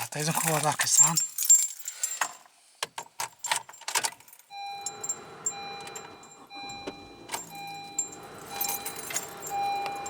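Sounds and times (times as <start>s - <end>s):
keys jangling: 0.0s - 2.5s, 7.3s - 10.0s.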